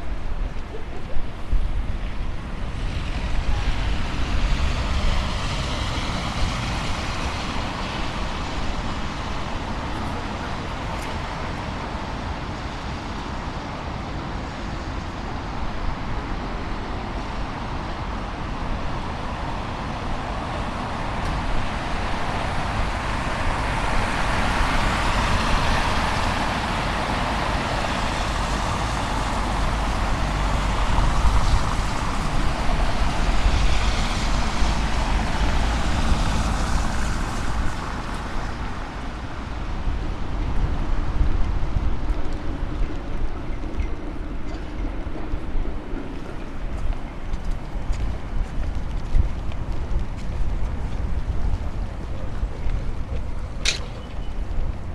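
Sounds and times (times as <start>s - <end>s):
traffic rumble: 0.0s - 54.9s
vehicle passing by: 20.6s - 40.4s.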